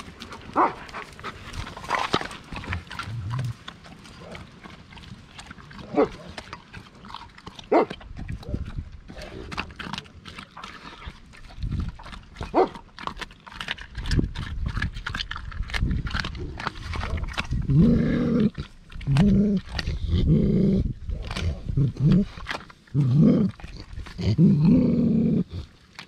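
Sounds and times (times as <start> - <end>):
dog chewing and crunching: 0.0 - 26.0
dog growling: 0.5 - 12.8, 13.5 - 25.7
teeth clicking on steel bowl: 1.6 - 20.2.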